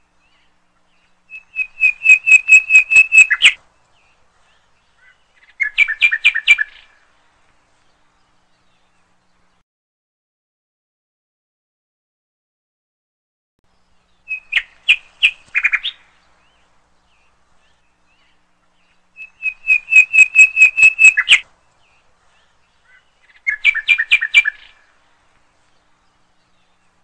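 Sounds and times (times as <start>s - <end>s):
small bird chirping: 0.1s - 7.0s, 13.7s - 25.0s.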